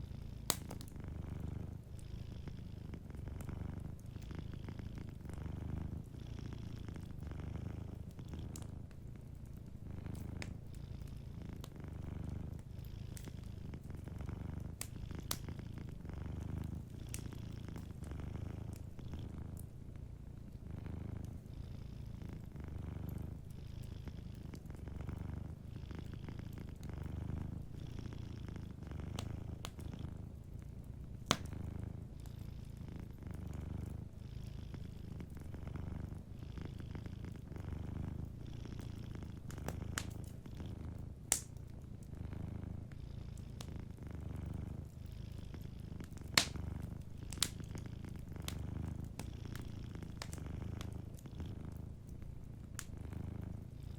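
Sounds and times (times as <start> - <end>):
wood fire crackling: 0.0 - 2.1, 2.8 - 21.5, 22.4 - 34.1, 34.8 - 53.8
cat purring: 0.0 - 53.9
sharp fire pops: 46.4 - 46.7.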